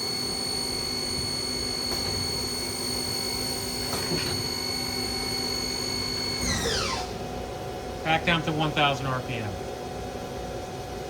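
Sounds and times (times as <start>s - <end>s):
lathe spindle whine: 0.0s - 7.3s.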